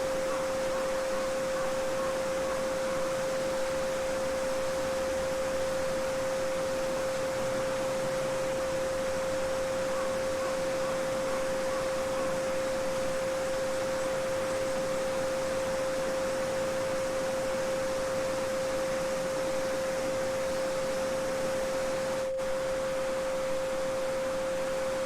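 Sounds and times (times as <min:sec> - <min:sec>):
steady pure tone: 0:00.0 - 0:25.0.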